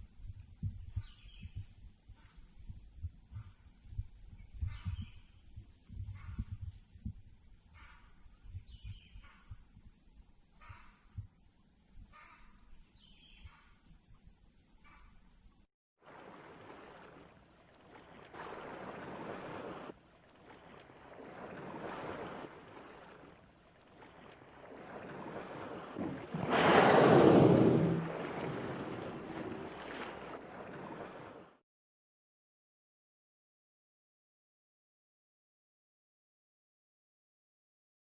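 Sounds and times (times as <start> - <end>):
high insect drone: 0.0 - 15.7.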